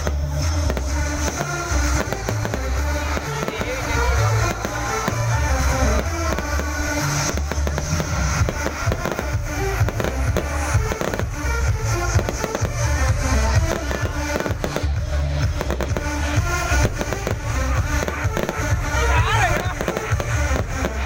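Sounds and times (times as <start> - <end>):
fireworks bangs: 0.0 - 21.0
music with heavy bass beat: 0.0 - 21.0.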